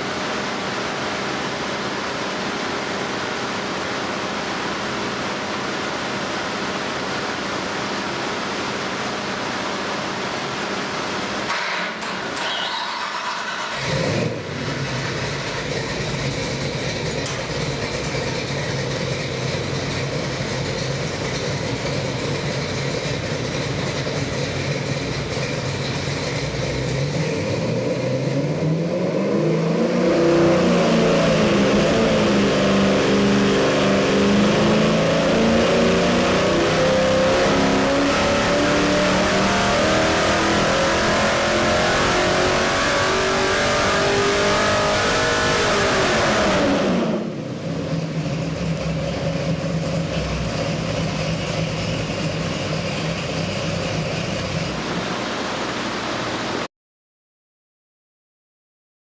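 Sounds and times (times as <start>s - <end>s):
engine running on dyno: 0.0s - 56.7s.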